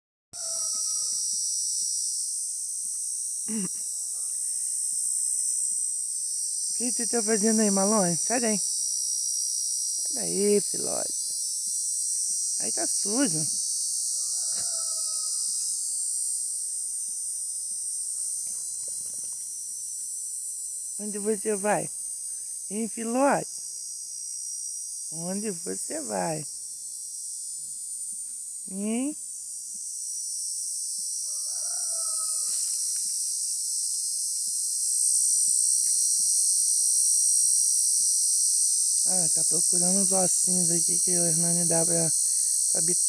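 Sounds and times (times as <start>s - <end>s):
rooster crowing: 0.4s - 1.3s, 14.1s - 16.0s, 31.2s - 33.0s
crickets chirping chorus: 0.4s - 43.0s.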